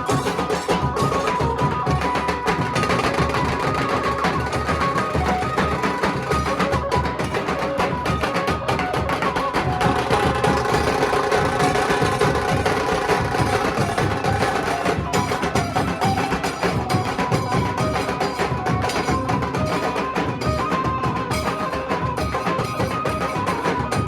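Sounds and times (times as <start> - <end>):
drum ensemble fast rhythm: 0.0 - 24.0.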